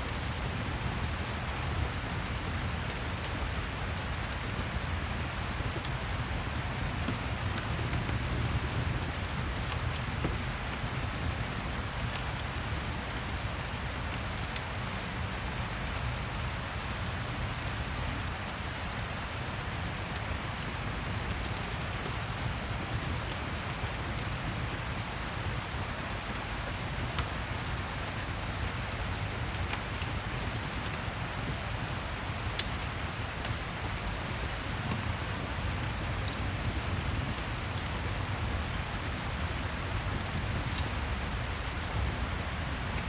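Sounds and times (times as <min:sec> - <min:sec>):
steady rain: 0:00.0 - 0:43.0
fireplace crackle: 0:15.6 - 0:43.0.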